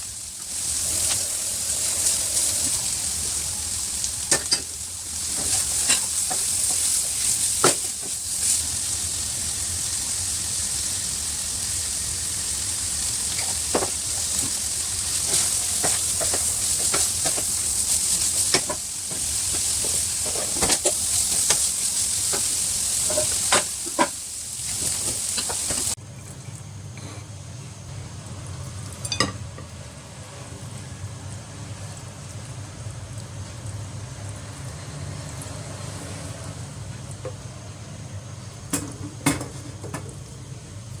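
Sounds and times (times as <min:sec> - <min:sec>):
food sizzling in a hot pan: 0:00.0 - 0:26.0
spatula scraping and knocking pan: 0:13.4 - 0:25.9.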